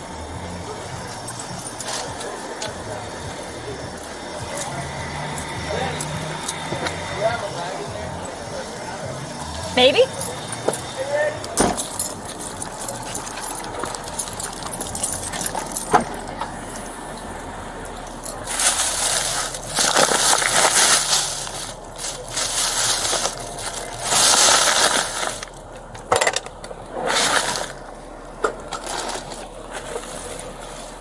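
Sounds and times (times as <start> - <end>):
rustling and crinkling: 11.7 - 31.0.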